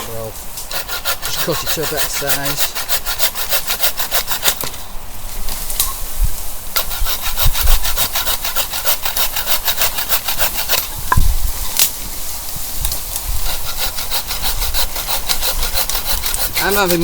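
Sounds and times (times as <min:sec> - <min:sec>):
hand saw cutting log: 0:00.0 - 0:04.8, 0:06.7 - 0:11.1, 0:13.0 - 0:17.0.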